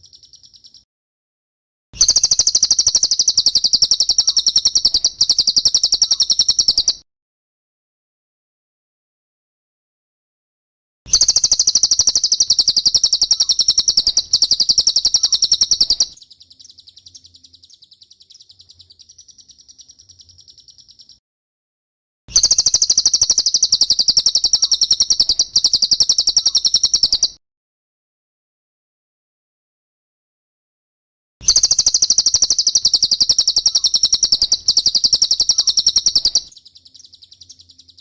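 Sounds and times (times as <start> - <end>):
bird trilling: 2.0 - 7.0, 11.1 - 21.2, 22.3 - 27.4, 31.4 - 38.0.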